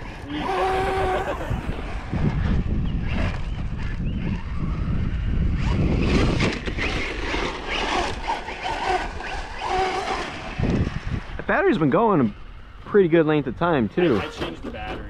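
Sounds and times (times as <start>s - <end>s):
rc truck motor whine: 0.0s - 11.4s
wind rumble on microphone: 0.0s - 15.0s.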